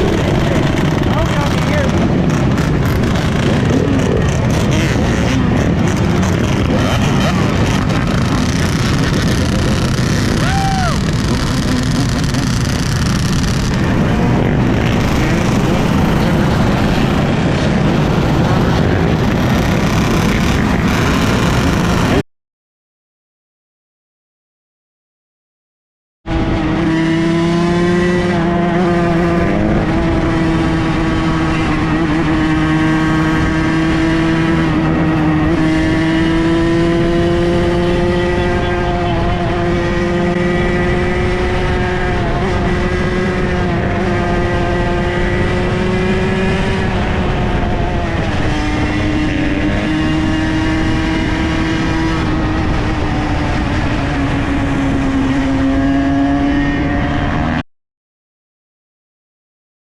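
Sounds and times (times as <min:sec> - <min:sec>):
dirt bike engines running: 0:00.0 - 0:22.2.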